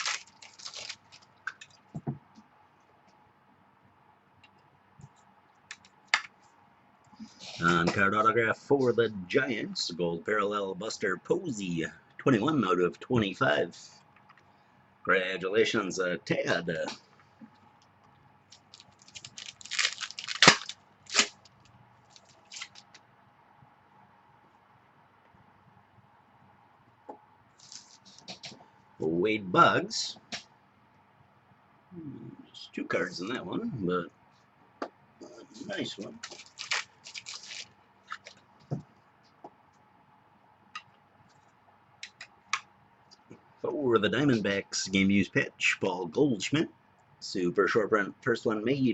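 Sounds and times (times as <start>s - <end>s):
sharp crack of packaging: 0.0s - 1.7s, 18.5s - 23.0s, 36.2s - 38.4s
card packaging crinkling: 0.0s - 1.8s, 18.5s - 23.0s, 36.2s - 38.4s.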